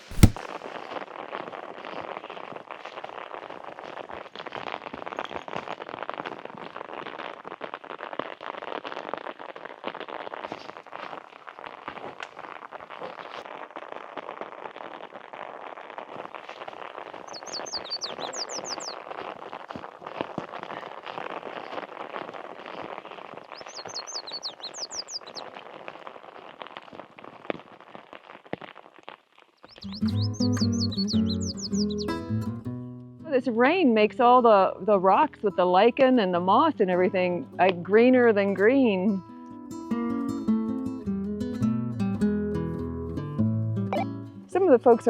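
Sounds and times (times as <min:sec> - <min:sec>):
rain hitting an umbrella: 0:00.0 - 0:30.9
bird chirping: 0:17.3 - 0:19.0, 0:23.5 - 0:25.4, 0:29.6 - 0:32.2.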